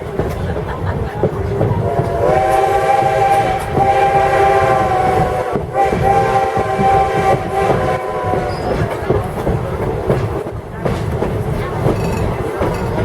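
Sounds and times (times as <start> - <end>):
train rumbling on rails: 0.0 - 13.0
steam locomotive chime whistle: 2.1 - 8.9.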